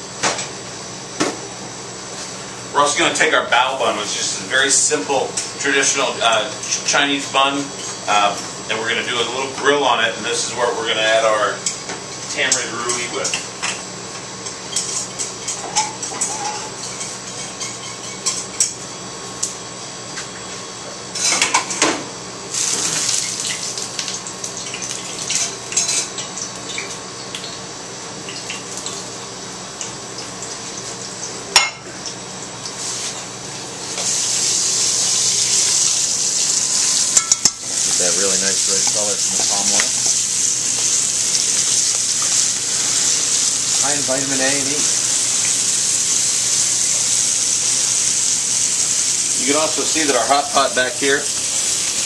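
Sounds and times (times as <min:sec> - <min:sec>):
crabs sizzling in hot oil: 0:00.0 - 0:19.7, 0:21.1 - 0:52.0
plates and utensils clinking: 0:14.7 - 0:18.8, 0:37.0 - 0:40.0.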